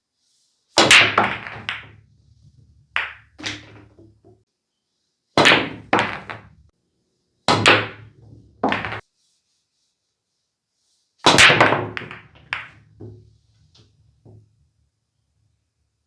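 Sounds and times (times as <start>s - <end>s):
low rumble of rolling balls: 0.8s - 4.4s, 5.4s - 6.7s, 7.6s - 9.0s, 11.6s - 14.7s
pool balls clacking: 0.8s - 4.4s, 5.4s - 6.7s, 7.5s - 9.0s, 11.3s - 14.5s.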